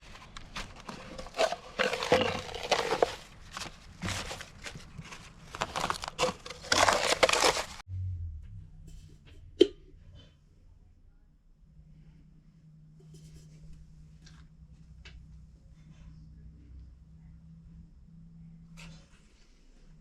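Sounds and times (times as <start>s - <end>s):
crinkling and crunching: 0.0s - 7.8s.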